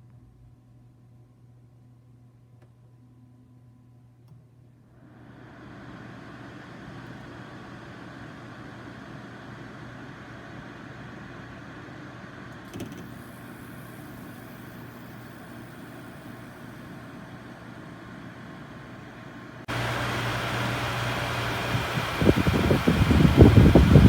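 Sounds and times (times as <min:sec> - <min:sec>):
air conditioner humming: 0:00.0 - 0:24.0
fan rushing: 0:05.0 - 0:24.0.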